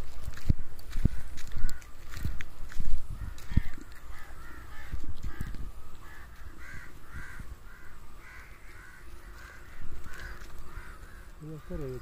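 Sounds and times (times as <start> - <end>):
microphone rumbles and bumps: 0.0 - 7.6
bird calling: 3.1 - 12.0.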